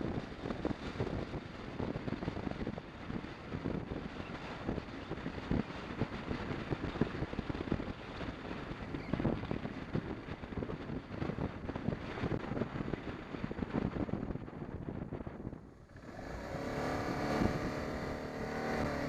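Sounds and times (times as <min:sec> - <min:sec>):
wind buffeting microphone: 0:00.0 - 0:19.0
road noise: 0:15.2 - 0:19.0
motorcycle engine: 0:15.7 - 0:19.0.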